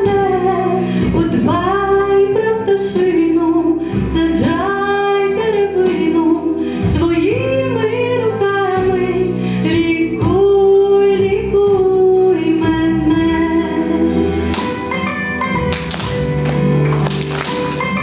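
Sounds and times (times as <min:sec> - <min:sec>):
woman singing: 0:00.0 - 0:14.4
instrumental accompaniment: 0:12.2 - 0:18.0.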